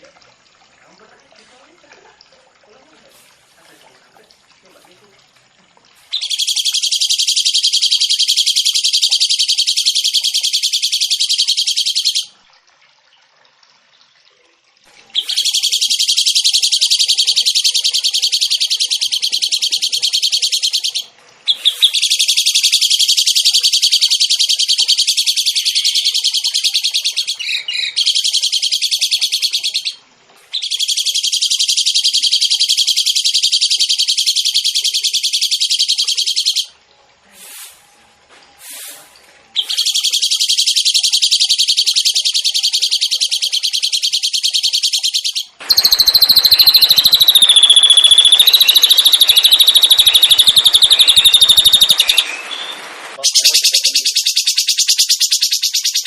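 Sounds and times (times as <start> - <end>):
songbird fast high trills: 6.1 - 12.3, 15.2 - 36.7, 39.6 - 56.0.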